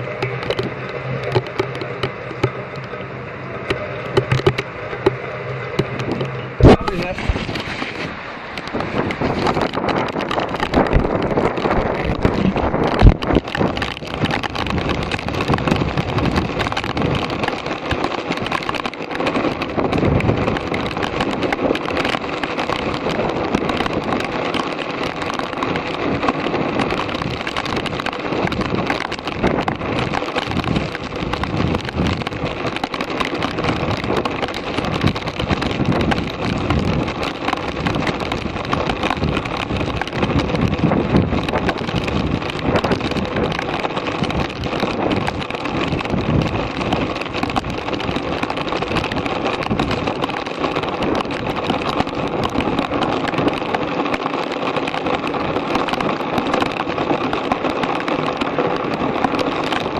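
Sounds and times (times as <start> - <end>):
water rushing and splashing: 0.0 - 59.9
wind buffeting microphone: 0.0 - 59.9.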